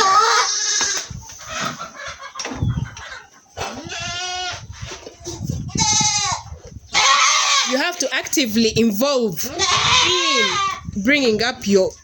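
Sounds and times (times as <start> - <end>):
goat bleating: 3.8 - 4.6, 5.6 - 7.8, 9.4 - 10.8.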